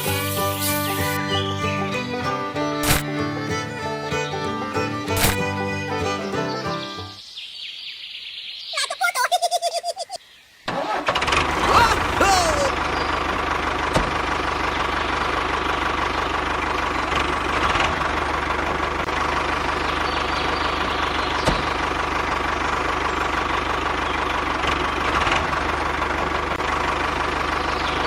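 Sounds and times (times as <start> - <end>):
sharp click: 2.8 - 3.1, 5.2 - 5.4.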